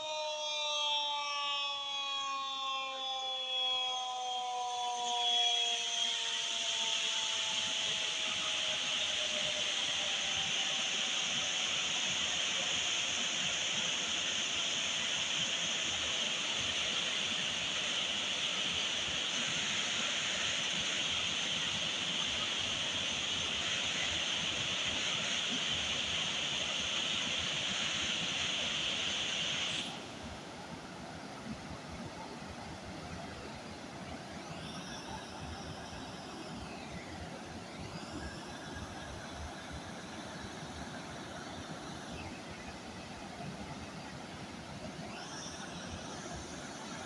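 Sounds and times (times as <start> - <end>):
warning siren winding down: 0.0 - 30.0.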